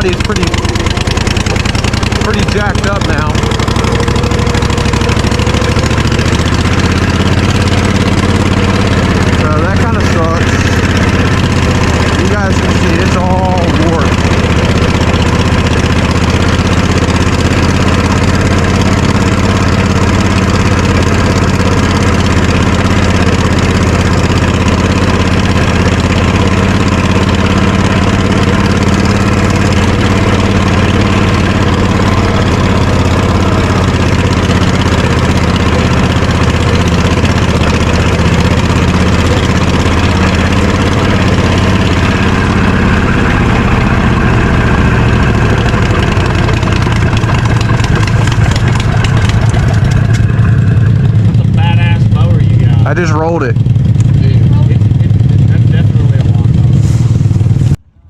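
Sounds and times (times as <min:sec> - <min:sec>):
lawnmower engine idling: 0:00.0 - 0:58.0.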